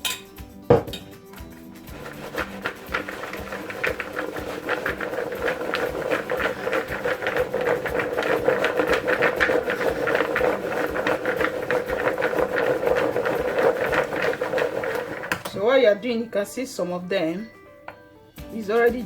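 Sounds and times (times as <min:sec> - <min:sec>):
peanuts rattling in a bowl: 0:01.8 - 0:15.6.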